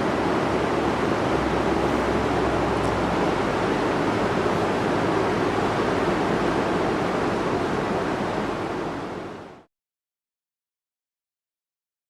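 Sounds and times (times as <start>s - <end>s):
falling water rushing: 0.0s - 9.5s.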